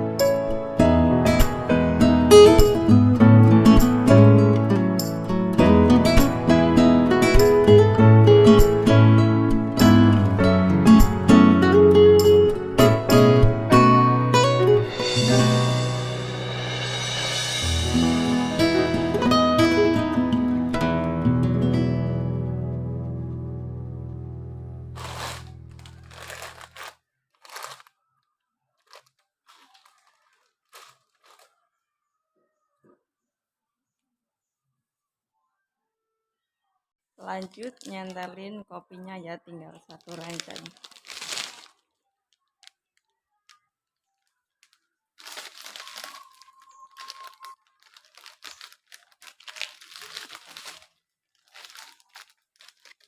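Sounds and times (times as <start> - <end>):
background music: 0.0 - 26.7
plastic packaging crinkling: 25.0 - 31.6, 37.2 - 38.4, 39.8 - 53.0.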